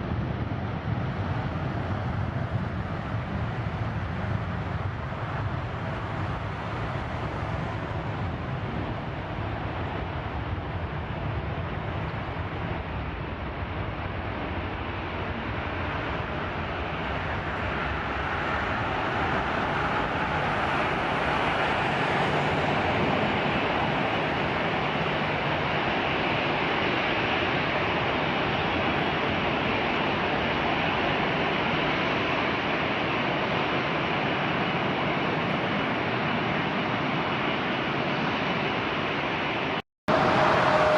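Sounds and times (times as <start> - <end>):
jet engine rushing: 0.0 - 40.9.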